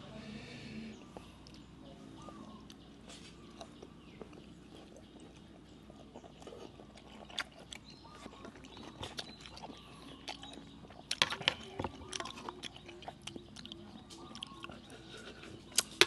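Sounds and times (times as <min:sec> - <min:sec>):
person chewing: 0:02.3 - 0:16.0
mouth clicks and smacks: 0:03.6 - 0:16.0.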